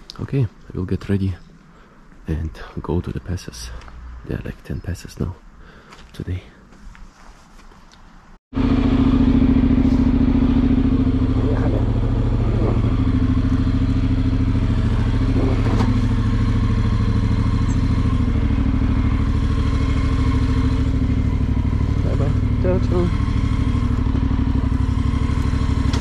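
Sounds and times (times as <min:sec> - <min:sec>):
motorcycle engine idling: 0:08.6 - 0:26.0.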